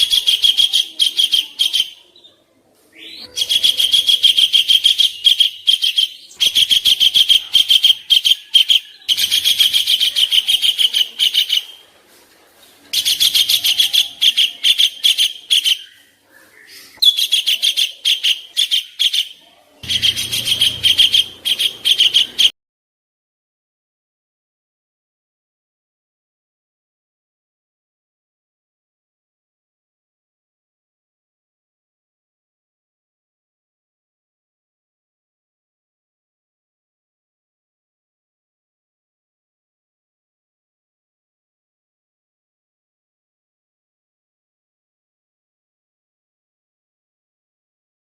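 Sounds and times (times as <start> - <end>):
songbird song high-pitched runs: 3.0 - 11.8, 13.0 - 22.5.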